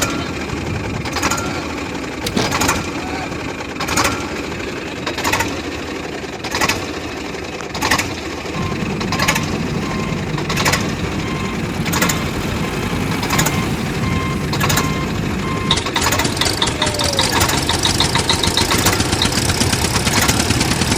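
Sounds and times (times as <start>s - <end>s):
rapid high ticking: 8.6s - 15.9s
reversing alarm beeps: 8.6s - 15.9s
vehicle engine running: 8.6s - 16.4s.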